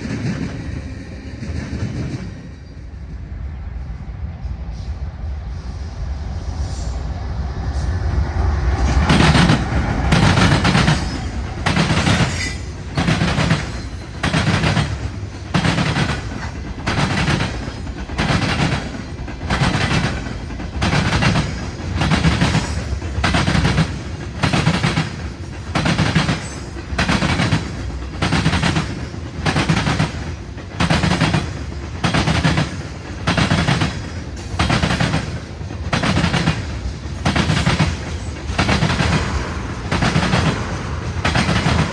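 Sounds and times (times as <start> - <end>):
low train rumble: 0.0 - 41.9
train wheels clacking over track joint: 8.8 - 41.9.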